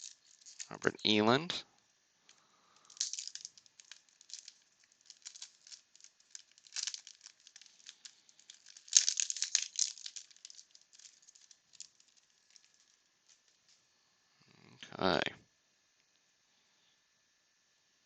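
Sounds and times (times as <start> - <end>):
wax paper wrapper crinkling: 0.0 - 0.8, 2.2 - 13.8.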